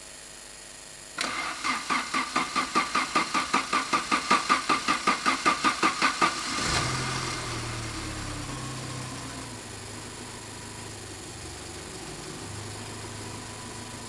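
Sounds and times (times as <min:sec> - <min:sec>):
starter motor cranking engine: 0:01.2 - 0:09.5
car engine running: 0:01.6 - 0:14.0.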